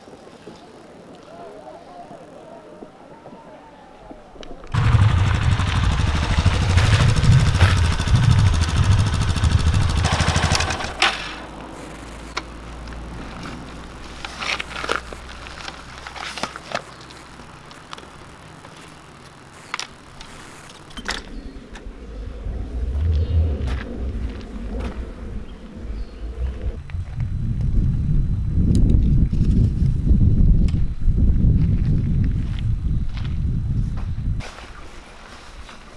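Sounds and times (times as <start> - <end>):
motorcycle engine running: 4.7 - 16.1, 20.0 - 27.4.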